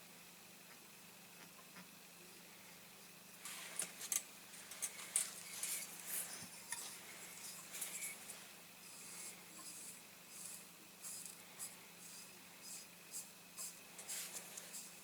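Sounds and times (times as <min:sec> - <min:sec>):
hand tools scraping and ticking: 0:03.8 - 0:15.0.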